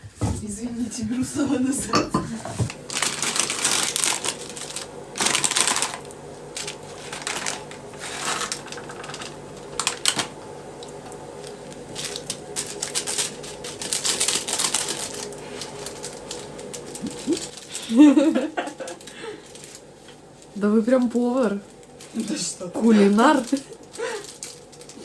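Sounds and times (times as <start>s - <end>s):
faint steady hum: 0.0s - 25.0s
rapid clicking and rustling: 2.7s - 10.3s, 11.9s - 20.2s.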